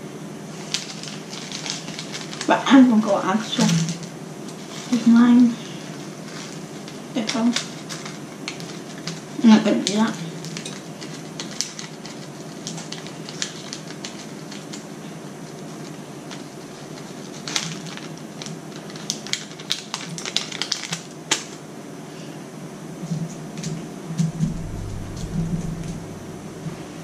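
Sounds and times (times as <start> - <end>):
steady low hiss: 0.0 - 11.8, 21.6 - 27.0.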